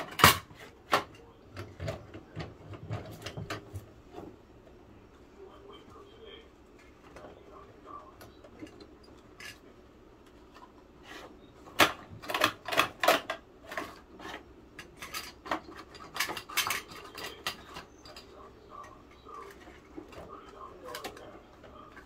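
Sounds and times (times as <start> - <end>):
plastic toy clicking and clattering: 11.8 - 22.0.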